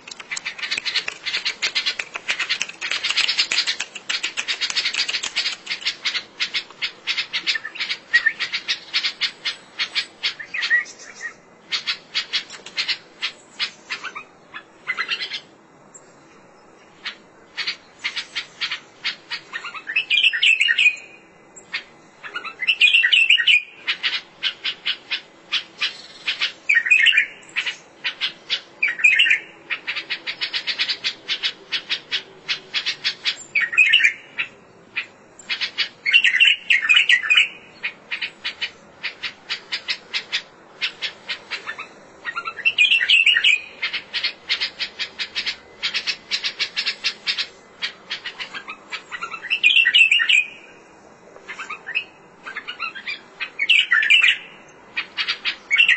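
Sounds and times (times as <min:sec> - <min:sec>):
bird warbled phrases: 0:00.0 - 0:09.1
bird chattering clicks: 0:00.0 - 0:11.1.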